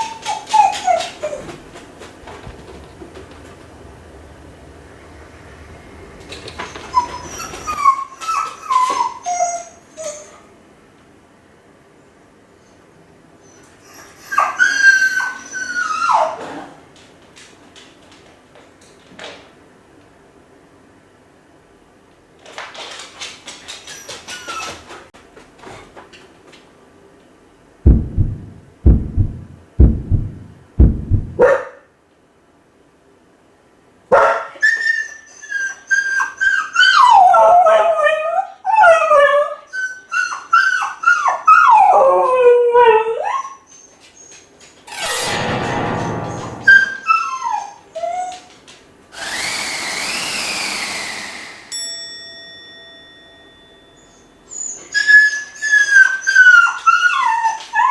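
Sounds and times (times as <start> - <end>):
dog howling and whining: 0.0 - 1.5, 6.6 - 10.4, 13.4 - 16.6, 34.6 - 44.3, 54.1 - 57.9
short noisy bursts: 27.9 - 31.4
heavy thumps: 27.9 - 31.5.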